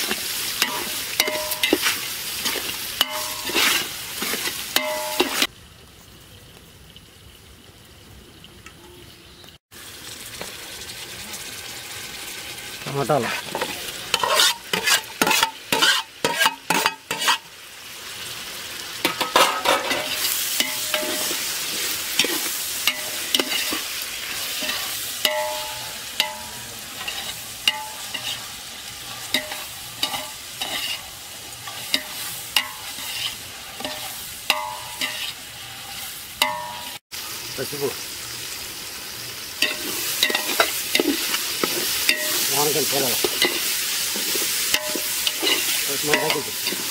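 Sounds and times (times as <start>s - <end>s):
vegetables sizzling in oil: 0.0s - 46.9s
spoon scraping pot: 13.3s - 17.4s, 29.3s - 37.0s, 43.2s - 46.9s
metal spoon clacking on metal: 44.7s - 46.8s.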